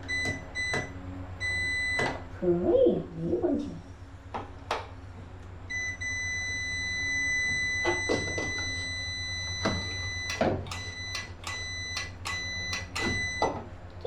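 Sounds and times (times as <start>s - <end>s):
low hum: 0.0s - 14.0s
high electronic beep tone: 5.7s - 13.5s.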